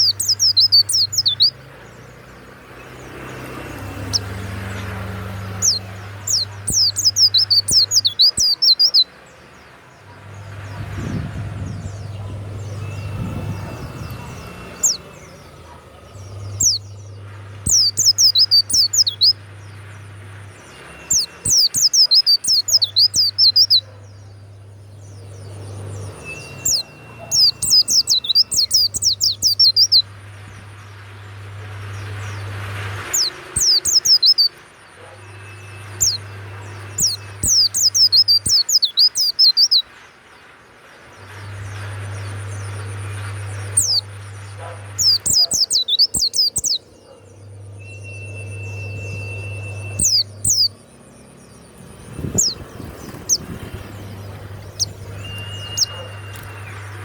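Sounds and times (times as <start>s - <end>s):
bird high fast twittering: 0.0s - 40.2s, 41.0s - 57.0s
low hum: 40.4s - 45.0s.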